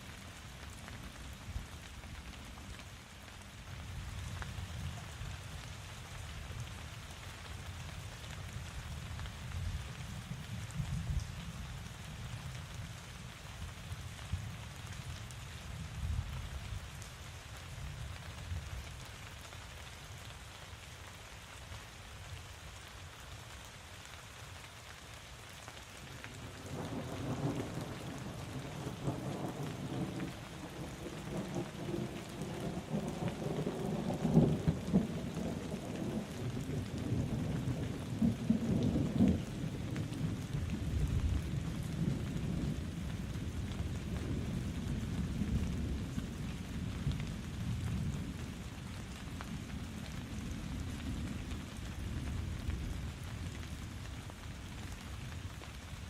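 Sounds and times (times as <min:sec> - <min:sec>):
steady rain falling: 0:00.0 - 0:56.0
low roll of thunder: 0:26.3 - 0:53.9.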